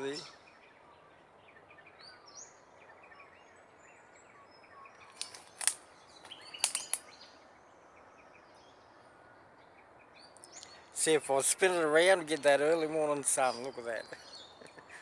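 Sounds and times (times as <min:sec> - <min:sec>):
sharp camera handling clicks: 0:05.1 - 0:07.0.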